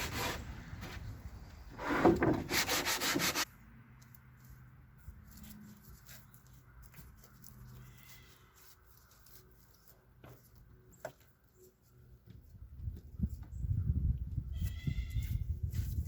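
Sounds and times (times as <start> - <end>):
sanding strokes: 0.0 - 0.5, 1.8 - 3.5.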